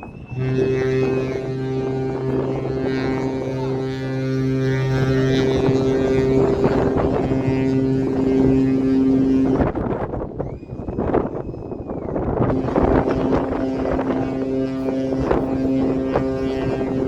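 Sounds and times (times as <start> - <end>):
wind noise on microphone: 0.0 - 17.0
ship horns blasting: 0.2 - 10.3, 12.5 - 17.0.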